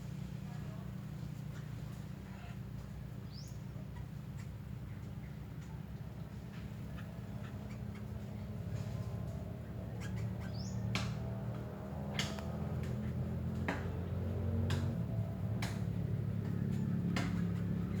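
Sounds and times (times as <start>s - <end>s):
bird chirp: 3.3s - 3.6s, 9.9s - 11.0s
birds squawking: 9.9s - 10.9s.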